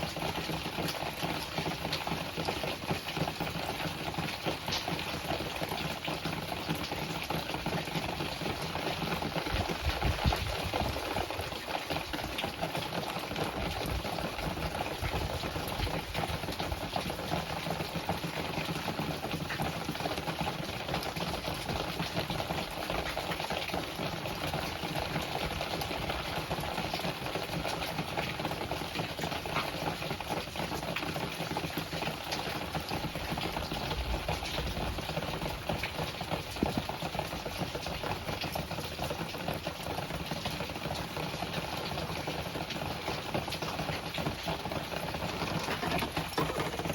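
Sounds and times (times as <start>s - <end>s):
wind and rain rushing: 7.2s - 17.9s.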